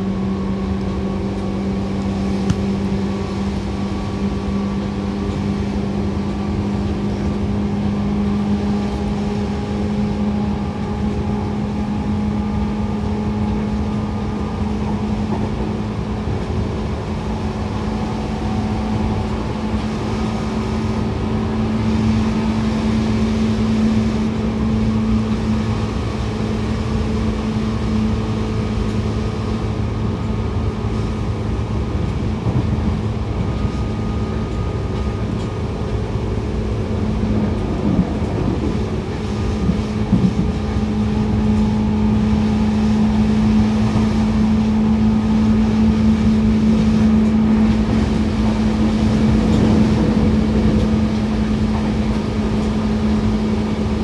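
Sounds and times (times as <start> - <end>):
electric train hum: 0.0 - 54.0
wheel and rail rumble: 0.0 - 54.0
train knocks: 32.0 - 54.0.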